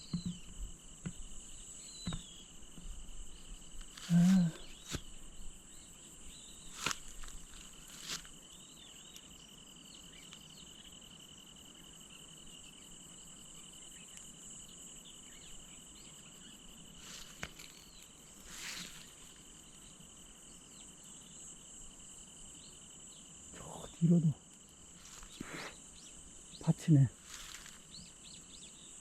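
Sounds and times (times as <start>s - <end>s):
rustles and knocks: 0.0s - 3.0s
insects calling: 0.0s - 29.0s.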